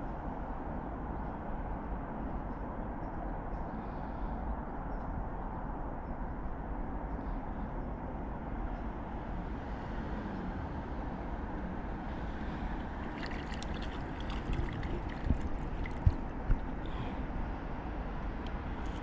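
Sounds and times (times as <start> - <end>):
low background noise: 0.0 - 19.0
water splashing: 12.8 - 17.2.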